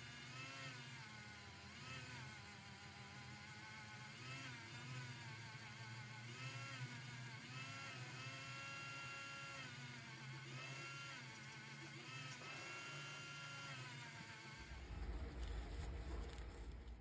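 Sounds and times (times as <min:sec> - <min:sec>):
small electric motor whining: 0:00.0 - 0:17.0
steady low hum: 0:14.4 - 0:17.0.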